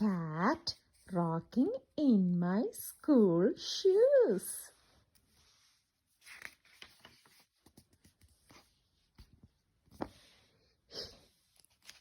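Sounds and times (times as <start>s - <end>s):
book handling rustle: 5.0s - 10.6s, 11.3s - 12.0s
page turning swish: 6.2s - 9.3s.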